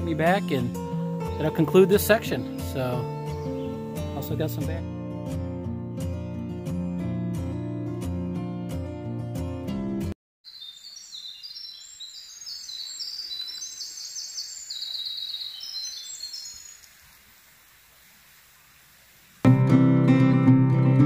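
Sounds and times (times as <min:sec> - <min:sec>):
acoustic guitar music: 0:00.0 - 0:10.2, 0:19.4 - 0:21.0
songbird trilling song: 0:00.2 - 0:04.5, 0:10.5 - 0:16.9.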